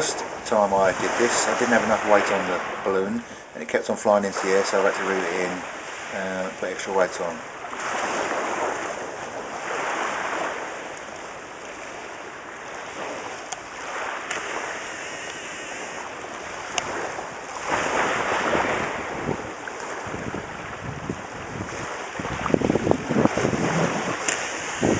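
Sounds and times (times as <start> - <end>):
waves washing onto shore: 0.0 - 24.9
wind gusting on microphone: 0.0 - 24.9
faint clicks: 13.5 - 16.1.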